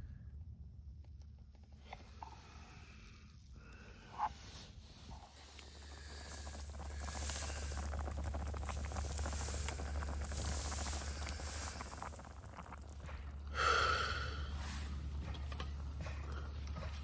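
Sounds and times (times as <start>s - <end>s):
campfire crackling: 4.8s - 17.0s
person exhaling: 13.5s - 14.9s.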